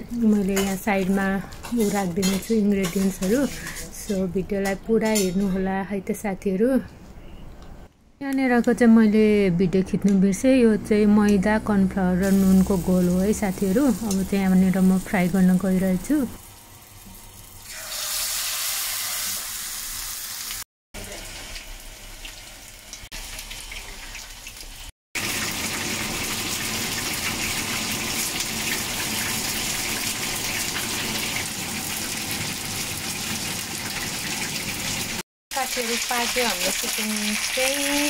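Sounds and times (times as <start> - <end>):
chicken deep-frying in oil: 12.2 - 38.0.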